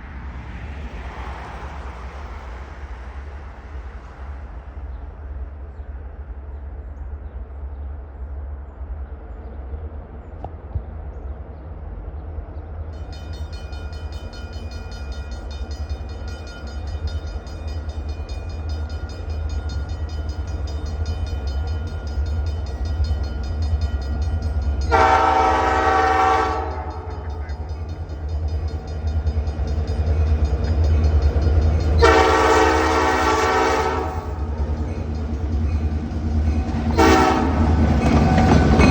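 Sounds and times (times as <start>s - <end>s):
diesel locomotive engine rumble: 0.0s - 38.9s
locomotive horn blasts: 24.8s - 27.7s, 32.0s - 34.6s, 36.9s - 37.8s.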